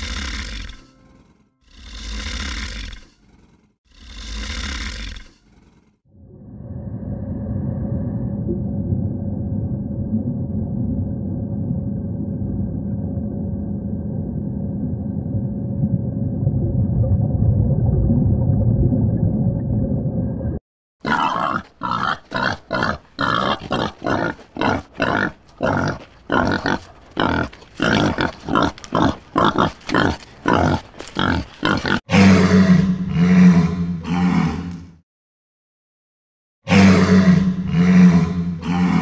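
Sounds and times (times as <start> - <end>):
wild boar feeding: 21.1 - 32.0.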